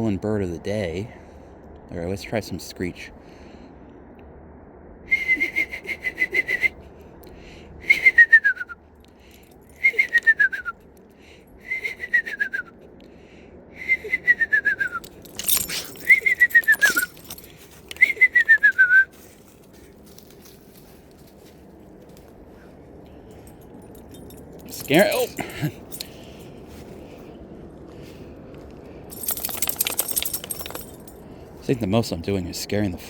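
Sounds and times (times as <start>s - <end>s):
person whistling owl calls: 5.1s - 6.8s, 7.8s - 8.8s, 9.8s - 10.7s, 11.6s - 12.8s, 13.8s - 15.0s, 18.0s - 19.2s
rustle: 15.0s - 31.6s.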